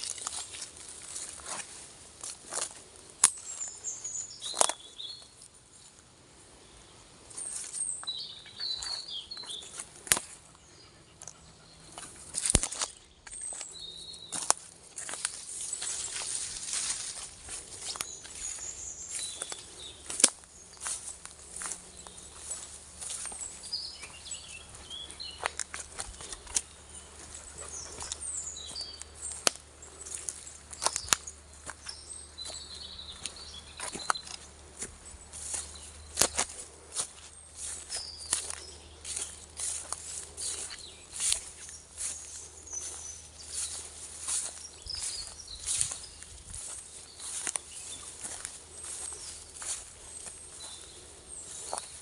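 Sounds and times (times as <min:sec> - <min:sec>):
twigs snapping underfoot: 0:00.0 - 0:03.7, 0:09.7 - 0:10.4, 0:12.3 - 0:13.7, 0:14.3 - 0:18.6, 0:19.4 - 0:23.4, 0:25.4 - 0:26.7, 0:27.9 - 0:50.9
footsteps on forest floor: 0:00.0 - 0:06.1, 0:07.2 - 0:52.0
small birds chirping: 0:00.0 - 0:52.0
twigs snapping: 0:12.4 - 0:13.0, 0:29.4 - 0:31.8.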